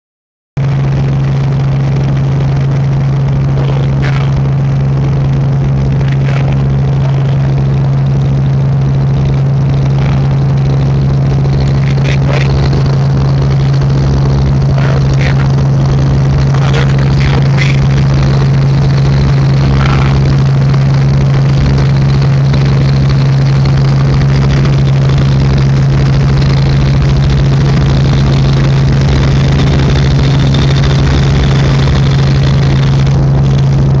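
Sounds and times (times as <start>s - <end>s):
helicopter drone: 0.6s - 34.0s.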